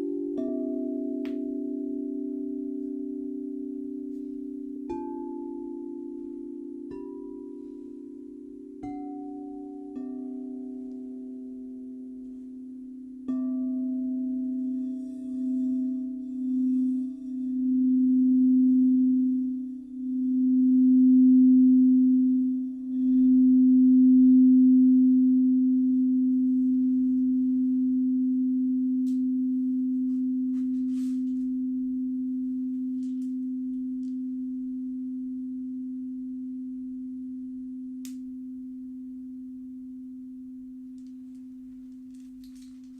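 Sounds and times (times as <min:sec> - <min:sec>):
crystal singing bowl: 0:00.0 - 0:42.9.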